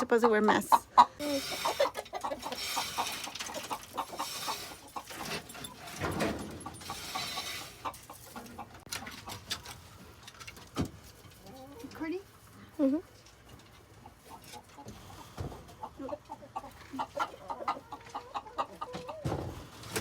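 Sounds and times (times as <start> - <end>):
chickens clucking: 0.0 - 20.0
rustling and scraping: 1.2 - 15.8.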